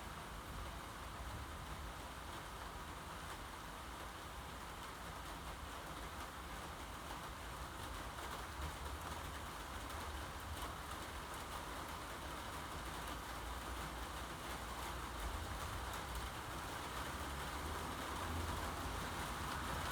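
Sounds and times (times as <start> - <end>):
steady rain falling: 0.0 - 19.9.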